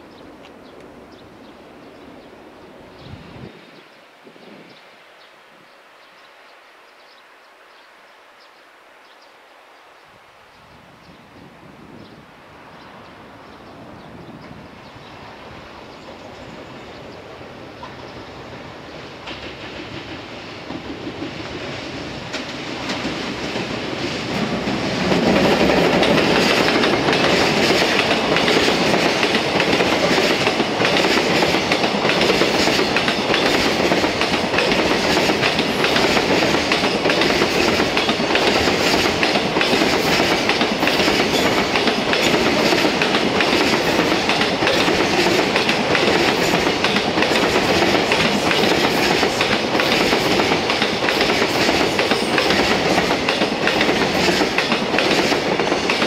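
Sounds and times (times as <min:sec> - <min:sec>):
electric locomotive passing: 0:12.4 - 0:56.0
wagon wheels clicking over rails: 0:24.4 - 0:56.0.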